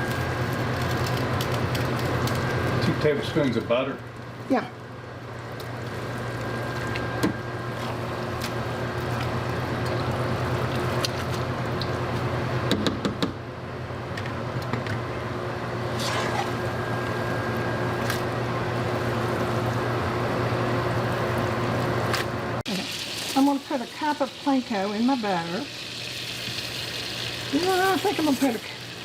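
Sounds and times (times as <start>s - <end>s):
butter sizzling in a pan: 22.7s - 29.0s.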